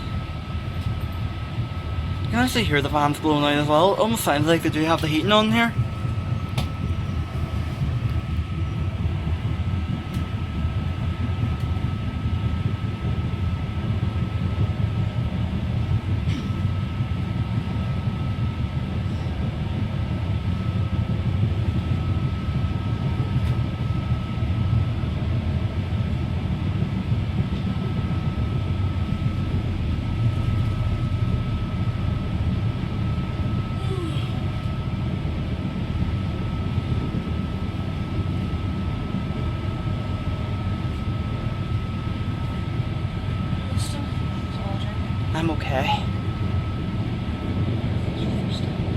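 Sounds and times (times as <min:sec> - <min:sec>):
fans blowing: 0:00.0 - 0:11.8
constant high whine: 0:00.0 - 0:48.9
train rumble: 0:00.0 - 0:48.9.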